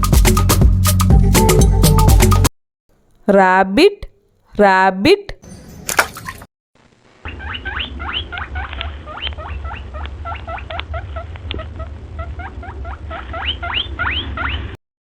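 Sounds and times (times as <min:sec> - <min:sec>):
small animal squeaking: 0:07.3 - 0:14.8.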